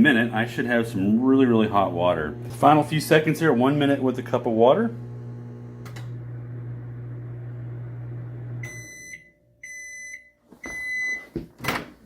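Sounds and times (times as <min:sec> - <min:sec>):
microwave oven humming: 0:00.2 - 0:09.1.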